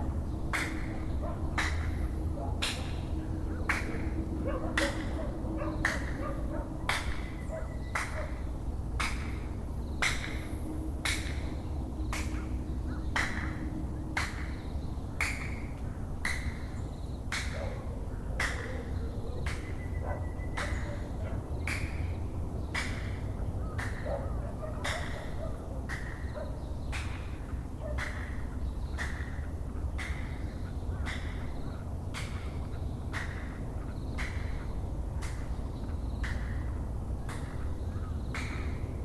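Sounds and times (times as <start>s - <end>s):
low background rumble: 0.0s - 24.8s.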